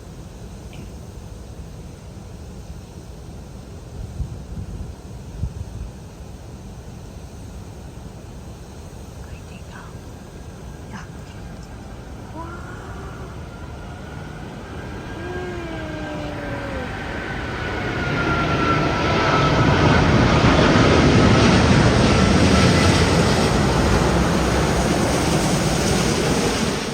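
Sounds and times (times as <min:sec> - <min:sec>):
jet airliner roaring overhead: 0:10.5 - 0:26.9.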